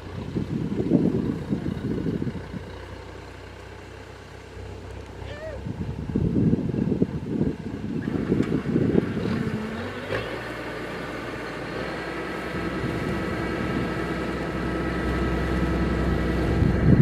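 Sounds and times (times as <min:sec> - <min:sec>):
wind buffeting microphone: 0:00.0 - 0:02.8, 0:05.2 - 0:10.0, 0:12.4 - 0:17.0
combine harvester engine and machinery: 0:00.0 - 0:17.0.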